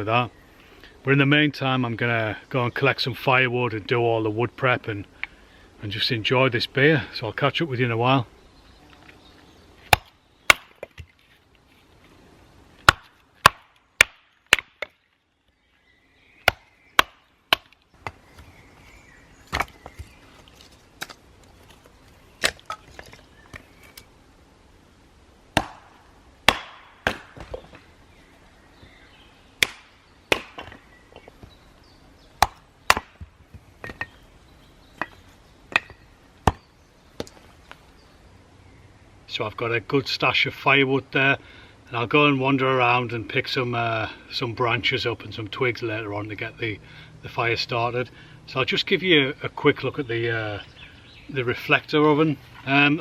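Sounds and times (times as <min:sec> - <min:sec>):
axe chopping wood: 0:09.8 - 0:11.1, 0:12.8 - 0:15.0, 0:16.4 - 0:18.2, 0:19.5 - 0:20.2, 0:22.4 - 0:23.2, 0:25.5 - 0:27.8, 0:29.6 - 0:30.8, 0:32.4 - 0:34.1, 0:35.0 - 0:37.4.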